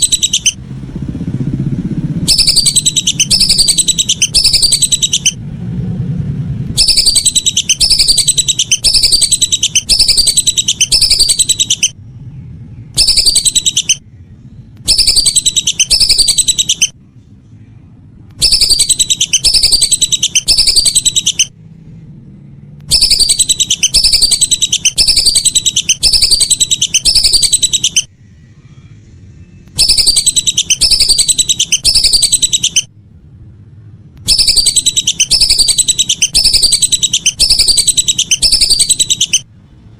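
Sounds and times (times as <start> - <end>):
duck whistling calls: 0.0 - 0.6, 2.2 - 5.4, 6.7 - 11.9, 13.0 - 14.0, 14.9 - 16.9, 18.4 - 21.5, 22.9 - 28.1, 29.7 - 32.9, 34.3 - 39.4.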